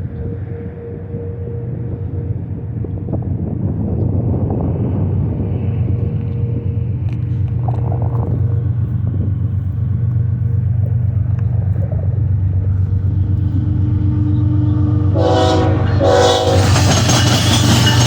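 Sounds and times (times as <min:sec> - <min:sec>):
locomotive rumbling: 0:00.0 - 0:18.0
passing train clattering: 0:00.0 - 0:18.0
train air horn blasts: 0:13.1 - 0:17.3.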